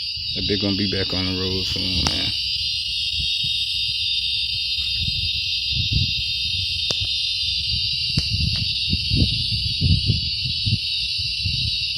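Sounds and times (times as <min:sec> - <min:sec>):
insects droning: 0:00.0 - 0:11.9
sharp clicks: 0:06.9 - 0:07.3.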